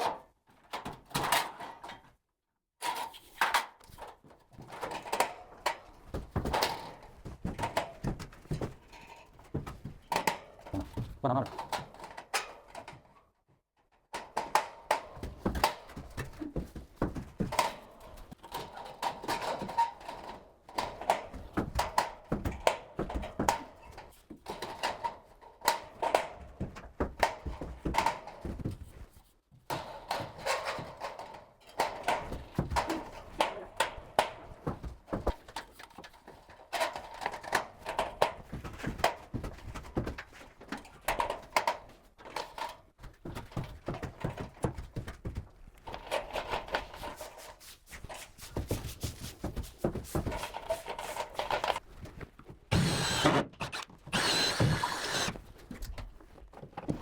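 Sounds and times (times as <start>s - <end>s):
wood and tools knocking: 52.7s - 55.4s.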